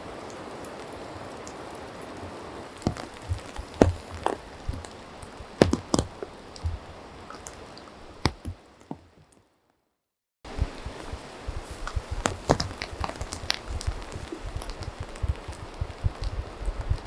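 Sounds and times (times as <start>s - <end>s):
rain hiss: 0.0s - 8.8s, 10.5s - 17.0s
heavy water drips tapping: 2.7s - 9.0s, 10.5s - 17.0s.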